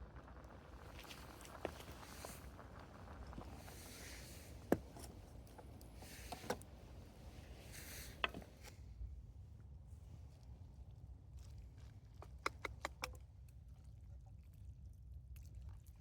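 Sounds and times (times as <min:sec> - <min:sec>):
campfire crackling and popping: 0:00.0 - 0:06.0.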